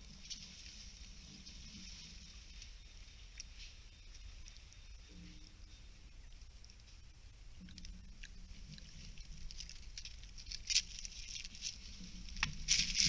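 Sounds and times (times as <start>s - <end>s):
rustling leaf litter: 8.9s - 13.0s.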